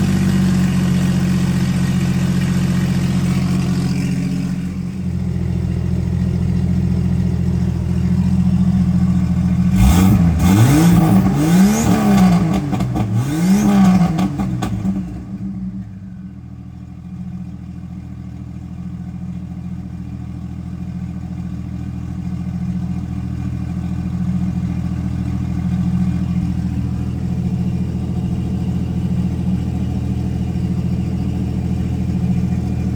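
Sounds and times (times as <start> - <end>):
engine idling: 0.0 - 32.9
engine revving: 7.9 - 15.9.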